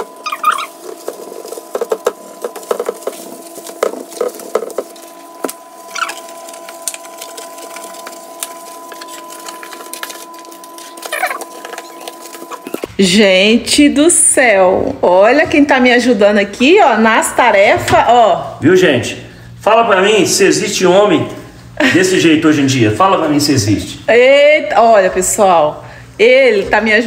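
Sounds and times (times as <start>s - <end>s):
sponge scrubbing refrigerator: 0.0s - 12.9s
steady hum: 0.0s - 27.0s.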